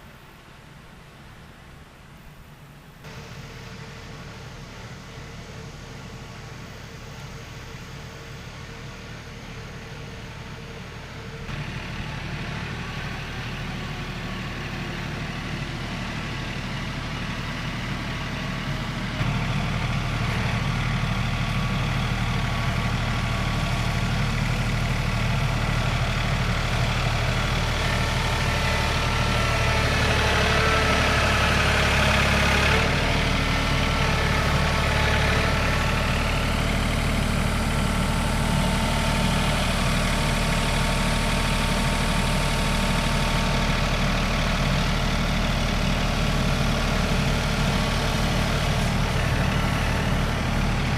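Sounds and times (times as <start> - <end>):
heavy engine running: 0.0 - 50.9.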